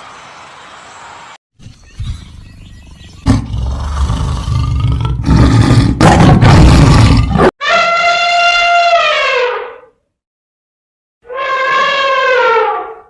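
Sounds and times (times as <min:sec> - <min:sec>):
big cat roaring: 0:03.2 - 0:07.5.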